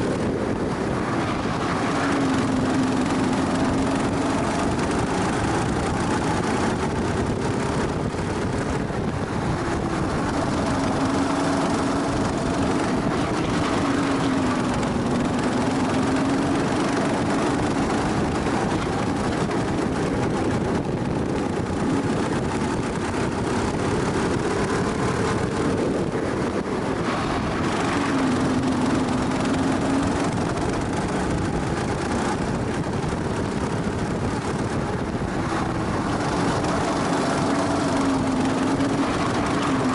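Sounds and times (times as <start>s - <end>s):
go-kart engine at speed: 0.0s - 39.9s.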